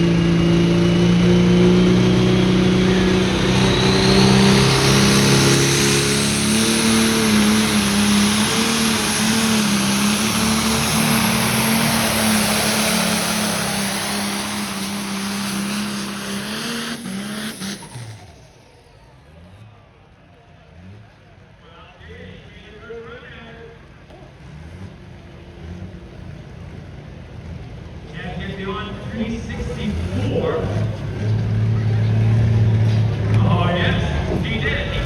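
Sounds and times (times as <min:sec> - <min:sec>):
high whine: 0:00.0 - 0:18.3
tractor engine under load: 0:00.0 - 0:19.5, 0:24.1 - 0:35.0.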